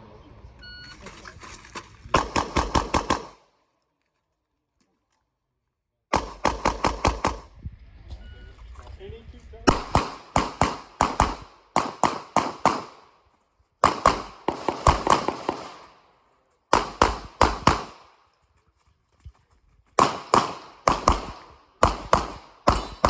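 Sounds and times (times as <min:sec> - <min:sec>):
rapid pistol shots: 0:02.2 - 0:03.5, 0:06.1 - 0:07.5, 0:09.7 - 0:13.2, 0:13.8 - 0:16.0, 0:16.7 - 0:18.2, 0:20.0 - 0:23.0.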